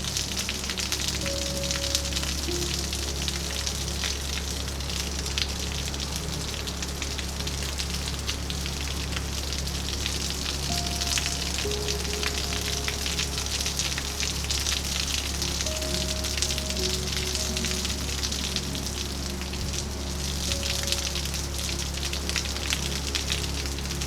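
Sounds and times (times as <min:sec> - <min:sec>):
heavy rain falling: 0:00.0 - 0:24.0
soft calm music: 0:00.0 - 0:24.0.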